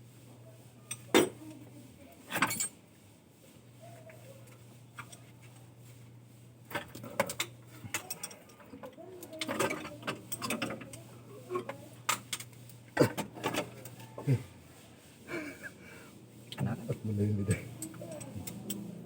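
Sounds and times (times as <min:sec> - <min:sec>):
steady low hum: 0:00.0 - 0:19.0
metal tools clinking on engine parts: 0:02.3 - 0:02.7.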